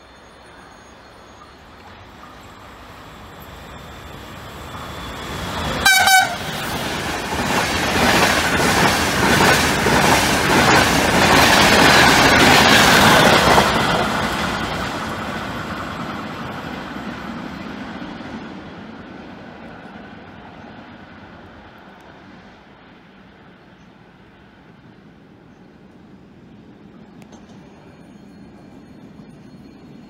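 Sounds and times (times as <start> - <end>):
train rushing past: 0.0 - 30.0
rail joint clicks: 0.5 - 17.3, 26.9 - 30.0
train horn blast: 5.8 - 6.6.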